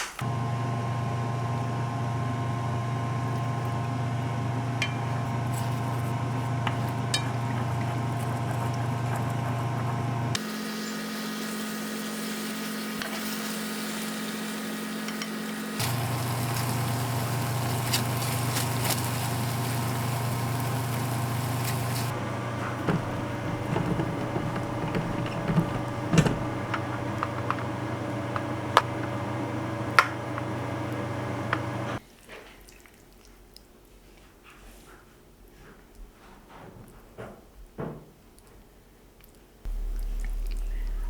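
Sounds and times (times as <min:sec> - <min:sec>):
extractor fan humming: 0:00.2 - 0:10.4, 0:13.6 - 0:32.0
utensils clinking against pan: 0:04.8 - 0:06.1, 0:06.7 - 0:09.8.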